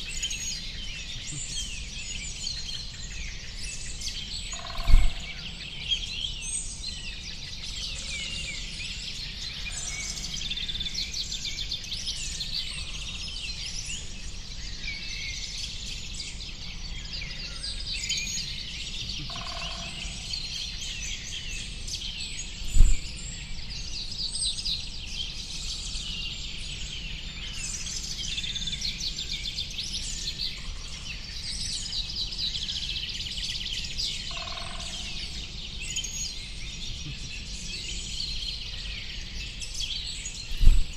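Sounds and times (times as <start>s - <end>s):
small birds chirping and twittering: 0.0s - 40.9s
low thump: 4.8s - 5.4s, 22.6s - 23.1s, 40.5s - 40.9s
steady low rumble: 22.6s - 23.2s, 40.5s - 40.9s.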